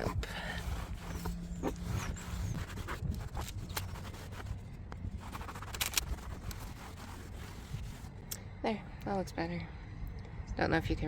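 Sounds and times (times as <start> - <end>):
cloth rubbing and scraping: 0.0 - 8.1
low steady hum: 0.0 - 11.0.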